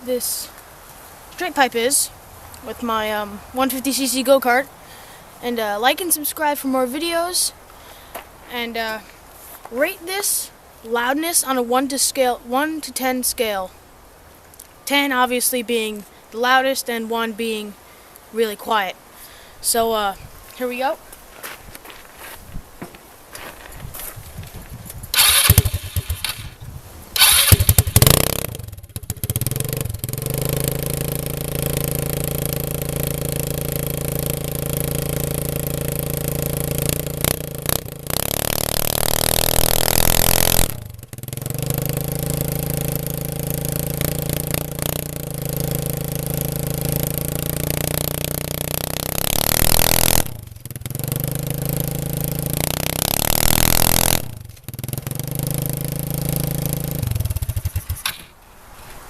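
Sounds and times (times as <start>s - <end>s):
go-kart engine idling and revving: 25.1s - 58.4s.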